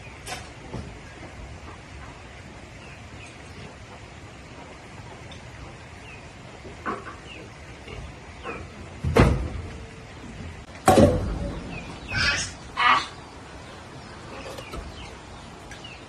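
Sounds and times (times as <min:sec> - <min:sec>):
small birds chirping faintly: 0:11.4 - 0:16.0.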